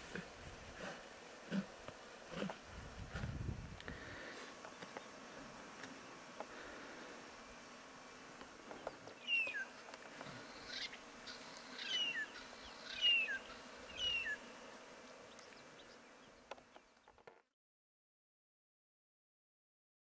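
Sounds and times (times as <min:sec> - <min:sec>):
bush ambience: 0:00.0 - 0:17.4
bird calling: 0:08.7 - 0:14.5.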